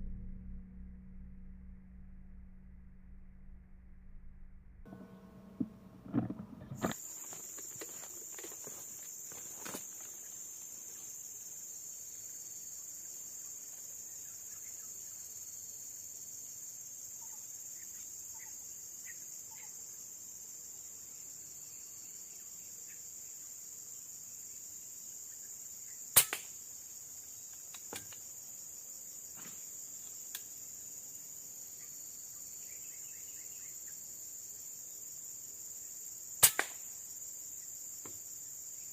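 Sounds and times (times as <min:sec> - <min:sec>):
insect chorus droning: 0:04.8 - 0:38.9
sharp clicks and knocks: 0:05.5 - 0:08.6.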